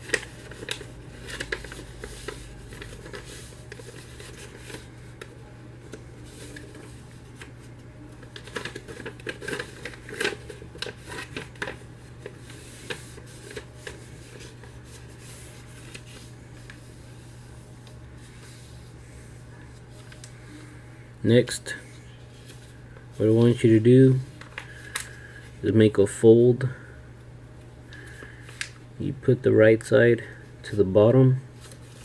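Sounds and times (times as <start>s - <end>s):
paper rustling and crinkling: 0.0s - 20.5s, 22.3s - 25.3s, 31.6s - 32.0s.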